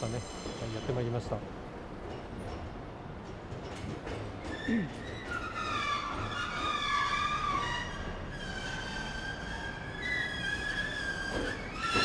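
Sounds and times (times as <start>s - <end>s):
train wheels squealing: 0.0s - 1.4s, 4.4s - 12.0s
low train rumble: 0.0s - 12.0s.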